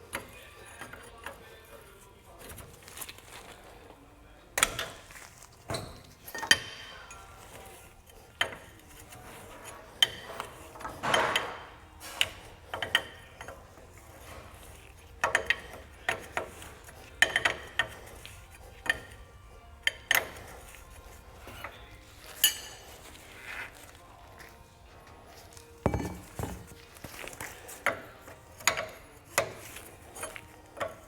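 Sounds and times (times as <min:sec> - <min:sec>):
wrench clicking and clanking: 0:12.2 - 0:13.7, 0:15.2 - 0:19.2, 0:19.8 - 0:20.7.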